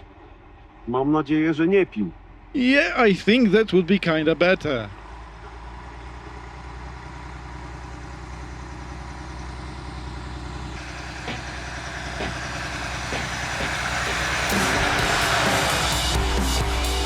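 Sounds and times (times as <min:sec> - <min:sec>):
motorcycle engine running: 0:02.1 - 0:17.0
drum-led music: 0:10.8 - 0:17.0.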